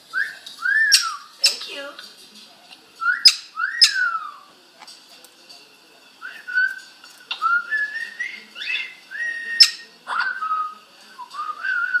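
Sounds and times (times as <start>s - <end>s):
parrot whistling: 0.1s - 1.7s, 3.0s - 4.5s, 7.4s - 12.0s.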